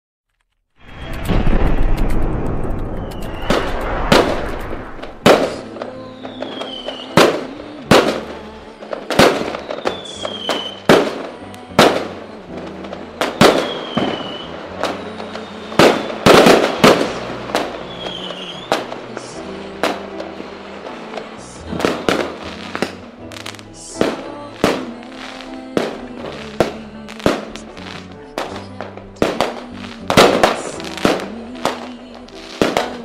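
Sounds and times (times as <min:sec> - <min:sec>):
falling firework whistles: 0:00.8 - 0:07.6, 0:09.2 - 0:11.2, 0:13.2 - 0:19.0
fireworks bangs: 0:00.8 - 0:33.0.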